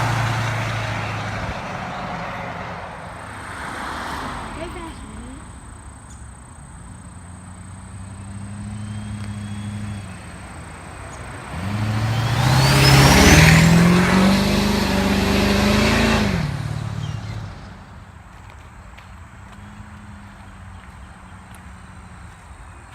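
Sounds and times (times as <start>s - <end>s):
diesel engine revving: 0.0s - 6.0s, 6.8s - 18.1s.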